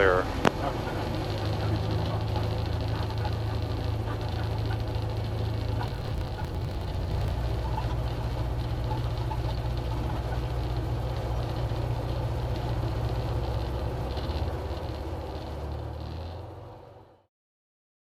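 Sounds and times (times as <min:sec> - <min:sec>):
aircraft engine humming: 0:05.8 - 0:07.4.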